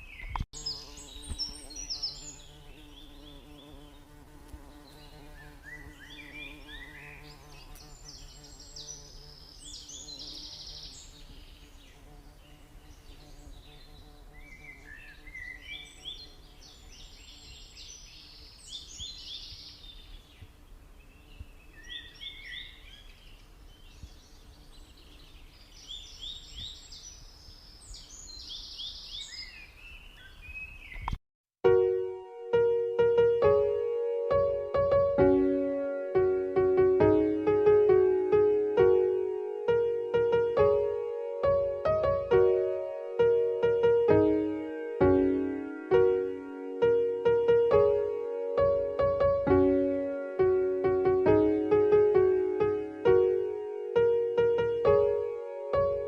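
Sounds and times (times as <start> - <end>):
small bird chirping and trilling: 0.0 - 31.2.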